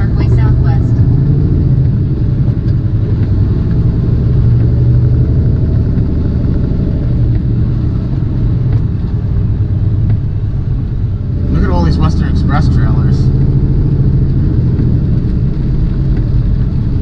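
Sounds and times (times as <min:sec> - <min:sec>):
diesel truck engine running: 0:00.0 - 0:17.0
road noise: 0:00.0 - 0:17.0.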